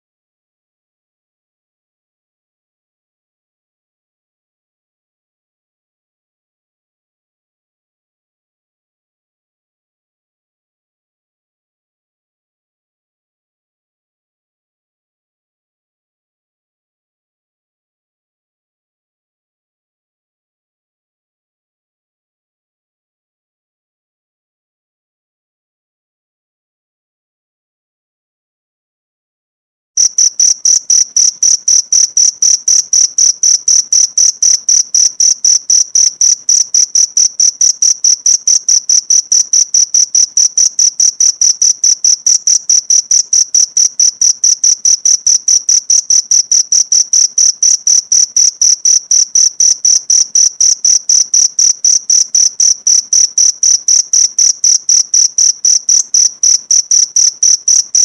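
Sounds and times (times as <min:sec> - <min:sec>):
cricket chirping: 0:30.0 - 0:58.0.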